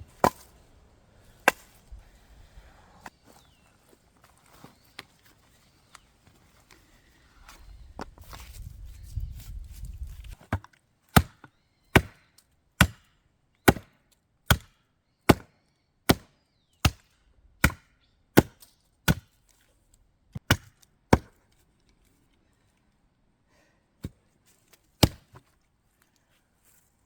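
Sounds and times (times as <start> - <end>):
blade chopping wood: 0.1 - 0.6, 1.4 - 1.8, 10.2 - 15.5, 16.1 - 19.4, 20.4 - 21.4, 25.0 - 25.5.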